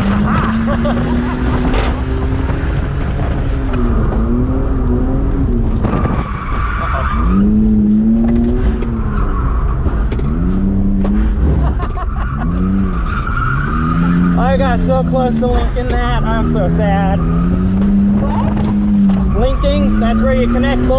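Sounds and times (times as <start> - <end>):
car engine revving: 0.0 - 20.9
tyres squealing: 11.8 - 20.9.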